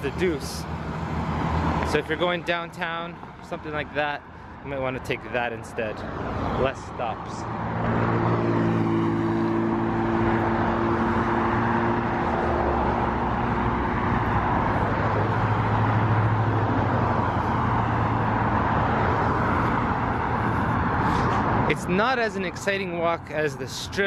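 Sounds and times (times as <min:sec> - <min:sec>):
vehicle engine rumble: 0:00.0 - 0:23.6
road traffic rushing: 0:00.0 - 0:24.0.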